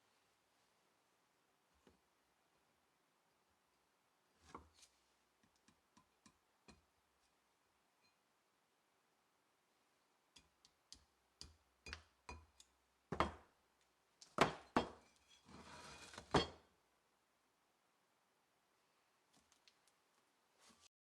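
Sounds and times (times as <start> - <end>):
short metal scrape: 15.3 - 16.3.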